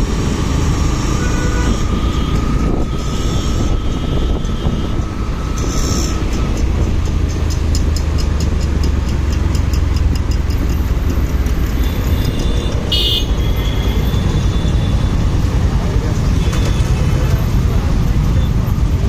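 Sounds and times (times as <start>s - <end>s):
motorcycle engine and road rumble: 0.0s - 19.0s
regular ticks: 5.6s - 12.9s.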